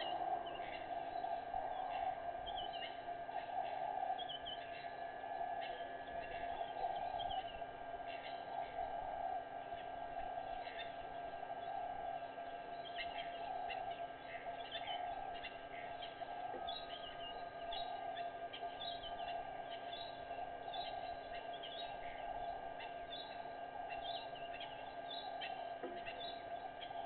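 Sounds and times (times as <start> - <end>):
small birds chirping: 0.0 - 27.0
steady hum: 0.0 - 27.0.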